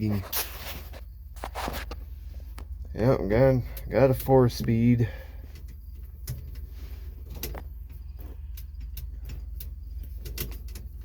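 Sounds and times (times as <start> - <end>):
gear lever clicks and clunks: 5.5 - 11.0.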